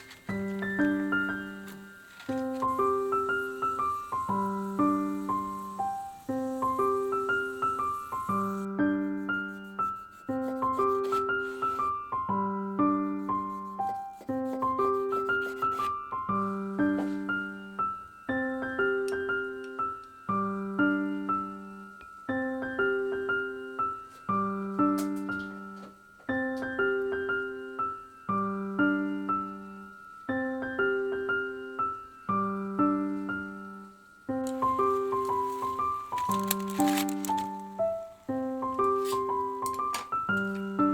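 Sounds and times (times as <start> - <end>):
gentle arpeggiated piano music: 0.0 - 40.9.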